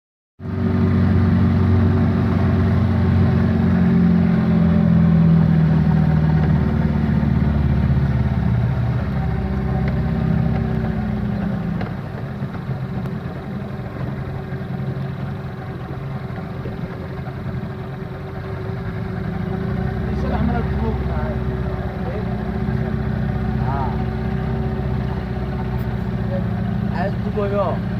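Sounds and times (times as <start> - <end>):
boat engine humming: 0.4 - 27.9.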